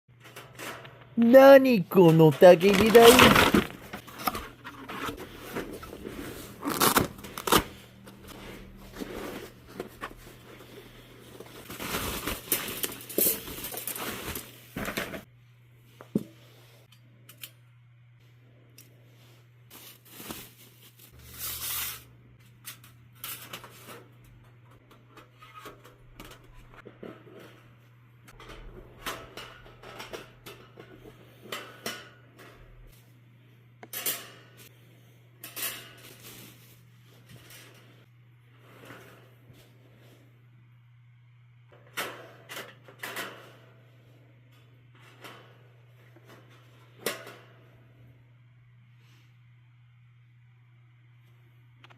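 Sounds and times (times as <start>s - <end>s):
packaging rustling and tearing: 6.5s - 7.7s.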